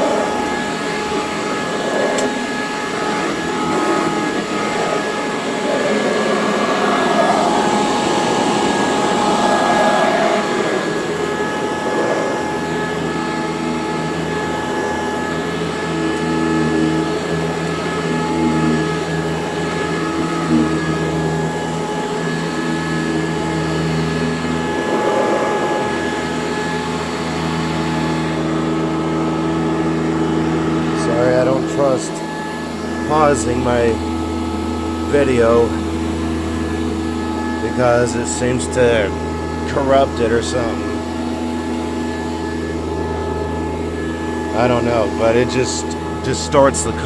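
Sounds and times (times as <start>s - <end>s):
rushing airflow: 0.0s - 15.5s, 23.0s - 28.6s
vacuum cleaner motor hum: 0.0s - 47.0s.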